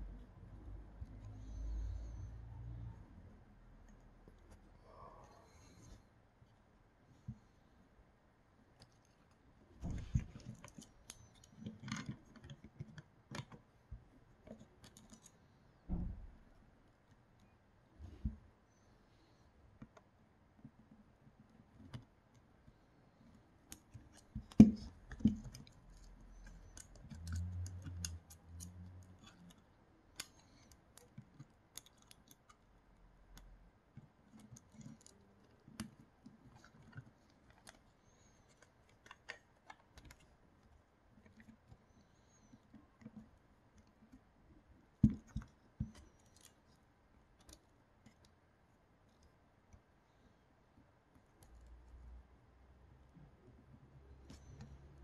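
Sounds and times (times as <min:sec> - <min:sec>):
light clicks of small parts: 0:21.5 - 0:52.2.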